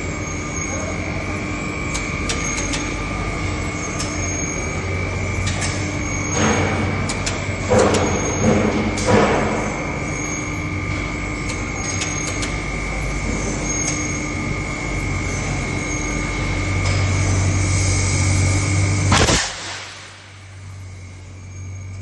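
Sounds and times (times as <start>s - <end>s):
pneumatic hammer running: 1.8s - 21.1s
loud air blast: 19.1s - 20.3s.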